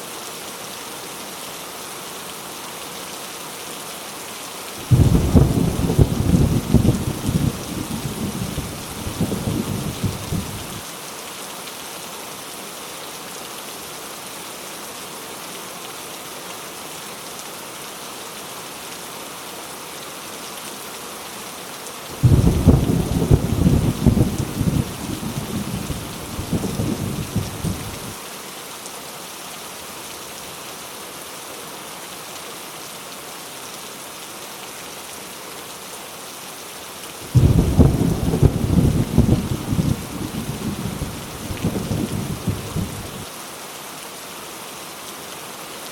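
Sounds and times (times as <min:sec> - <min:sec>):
heavy rain hissing: 0:01.8 - 0:11.0, 0:22.1 - 0:32.3, 0:36.1 - 0:45.9
thunder rumbling: 0:04.8 - 0:10.7, 0:22.2 - 0:28.1, 0:37.3 - 0:43.2.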